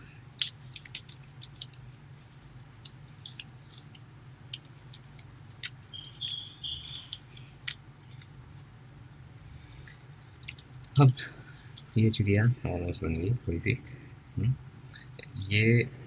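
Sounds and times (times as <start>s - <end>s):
low steady hum: 0.0s - 16.0s
paper crinkling and rustling: 0.3s - 6.5s.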